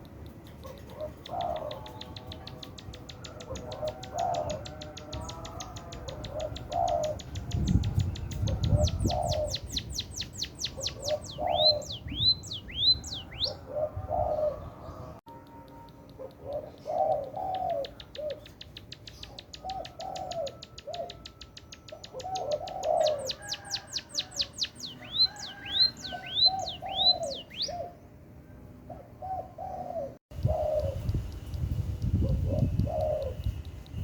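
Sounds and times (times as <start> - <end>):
low bird calls: 0.6 - 15.2, 16.1 - 28.1, 28.9 - 34.0
bird trilling and whistling: 5.2 - 13.6, 16.1 - 28.0.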